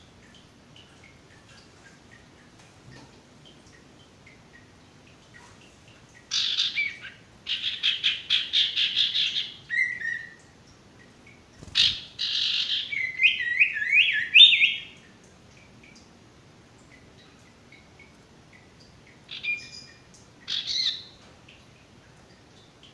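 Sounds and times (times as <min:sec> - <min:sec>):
birds chattering calls: 0:11.6 - 0:14.9.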